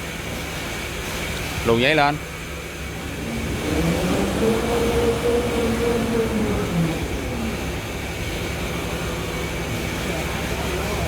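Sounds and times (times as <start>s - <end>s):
multi-tone machine whine: 2.7s - 11.0s.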